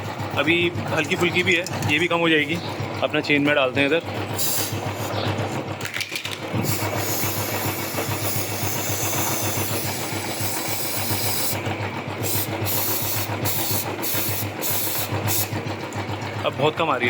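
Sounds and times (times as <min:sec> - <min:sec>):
lube spray hissing: 0:04.4 - 0:05.2, 0:06.6 - 0:11.6, 0:12.2 - 0:15.6.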